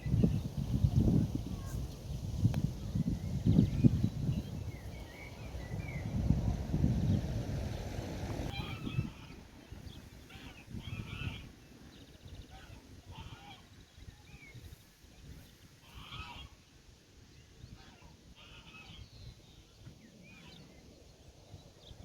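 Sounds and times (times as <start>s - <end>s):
low uneven rumble: 0.0s - 11.4s
farm animal calls: 8.5s - 9.5s, 12.4s - 13.7s, 15.8s - 16.6s.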